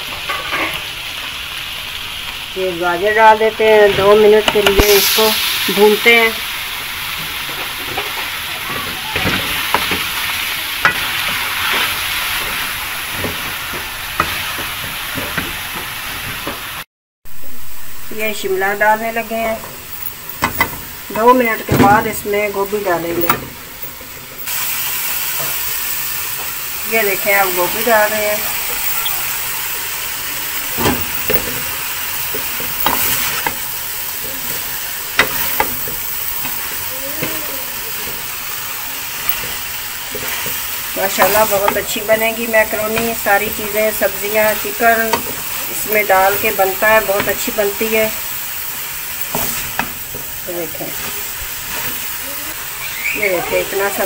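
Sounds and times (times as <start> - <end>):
food sizzling in hot oil: 0.0 - 54.0
spoon scraping and knocking a wok: 10.8 - 16.7, 19.7 - 21.0, 34.5 - 37.4, 39.2 - 47.8.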